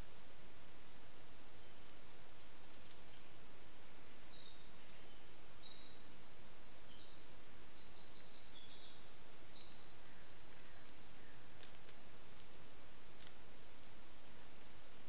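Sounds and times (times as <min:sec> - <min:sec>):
steady background hiss: 0:00.0 - 0:15.0
songbird singing: 0:01.5 - 0:12.6.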